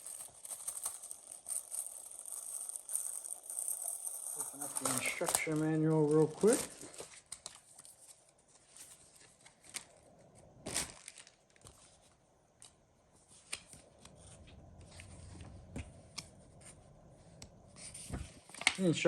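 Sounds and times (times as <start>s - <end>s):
paper pages rustling: 0.0s - 16.8s, 17.7s - 19.0s.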